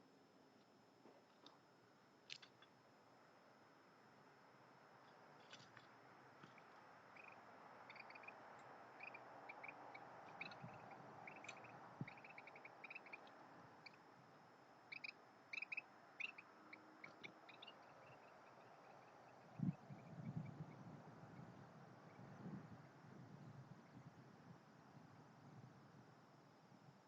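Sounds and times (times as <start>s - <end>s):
birds chirping faintly: 4.7s - 25.4s.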